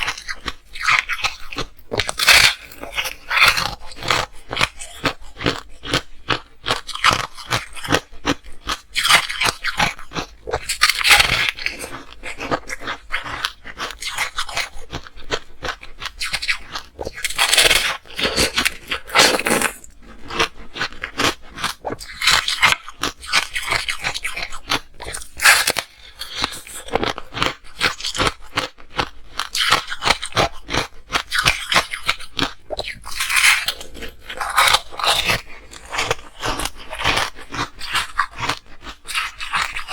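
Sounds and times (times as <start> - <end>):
ice crunching while chewed: 0.0 - 39.9.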